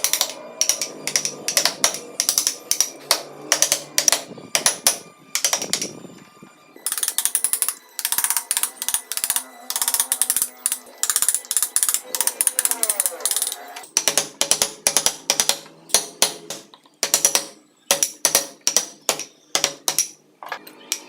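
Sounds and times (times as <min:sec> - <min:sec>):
carving strokes rattling clicks: 0:00.0 - 0:06.0, 0:06.8 - 0:20.2.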